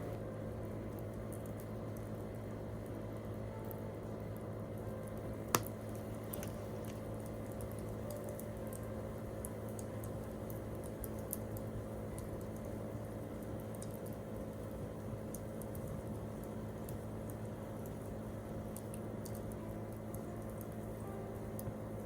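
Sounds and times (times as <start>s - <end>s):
steady low hum: 0.0s - 22.0s
campfire crackling: 5.6s - 20.9s.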